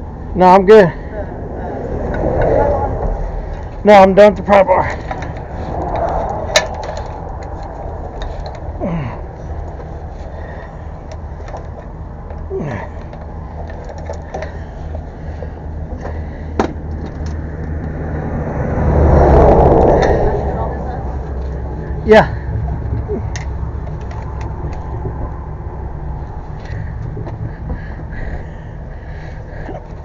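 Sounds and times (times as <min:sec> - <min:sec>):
sharp clicks and knocks: 0:02.1 - 0:08.8, 0:11.0 - 0:18.0, 0:22.8 - 0:25.5
vehicle engine idling: 0:04.5 - 0:18.4, 0:20.0 - 0:30.0.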